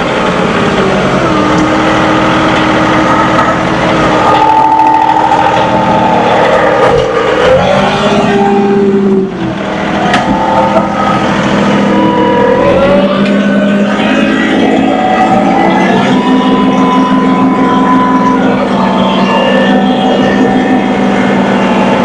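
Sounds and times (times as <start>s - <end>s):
tractor diesel engine changing speed: 0.0s - 22.0s.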